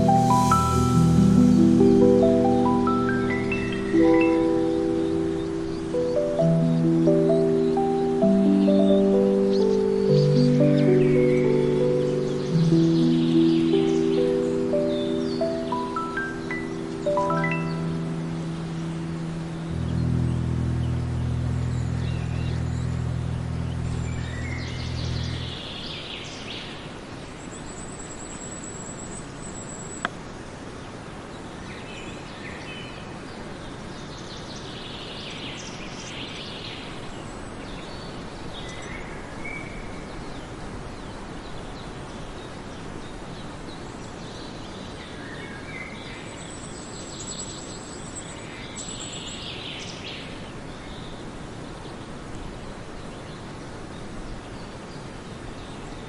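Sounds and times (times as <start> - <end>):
low steady hum: 0.0 - 25.8
birds chirping: 0.0 - 26.4
steady background hiss: 0.0 - 56.0.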